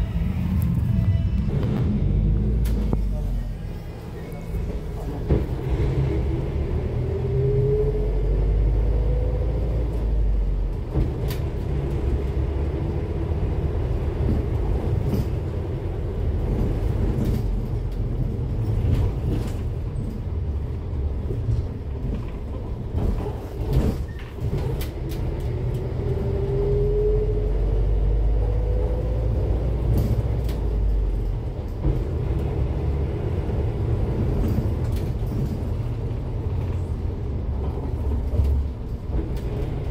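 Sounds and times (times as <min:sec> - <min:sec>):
engine rising whine: 0:00.0 - 0:04.4
bus engine low rumble: 0:00.0 - 0:39.9.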